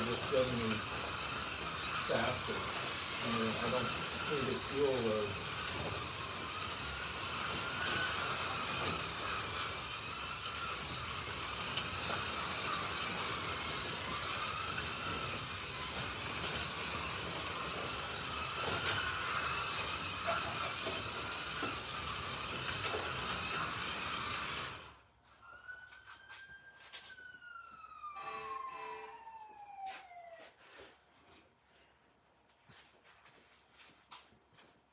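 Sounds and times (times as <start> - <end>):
slot car electric motors whining: 0.0 - 25.1
siren-like sliding tone: 25.3 - 30.9.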